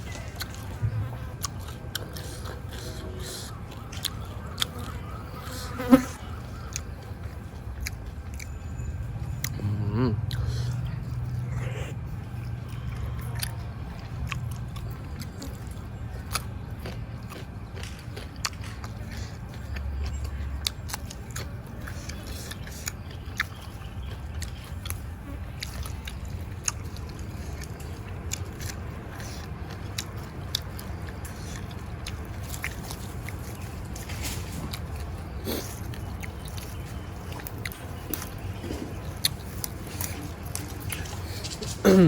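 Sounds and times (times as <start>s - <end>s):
man chewing food: 0.0s - 42.0s.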